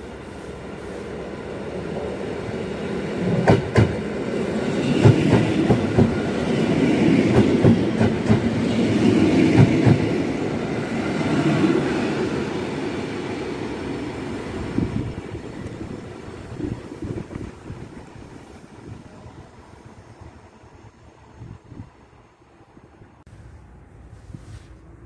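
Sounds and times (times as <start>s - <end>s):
train rumbling past: 0.0s - 25.0s
wheels clacking over rail joints: 3.2s - 10.4s.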